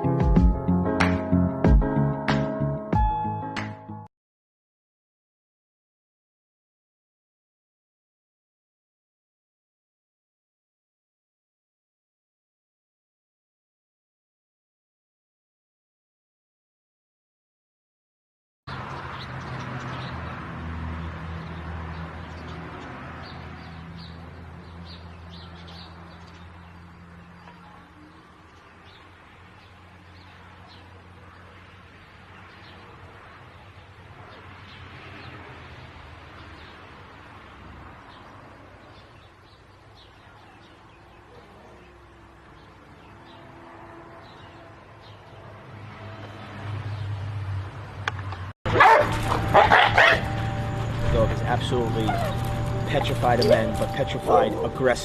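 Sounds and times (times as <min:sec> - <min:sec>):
birds chirping: 0:18.7 - 0:37.1, 0:38.0 - 0:45.5, 0:48.4 - 0:55.0.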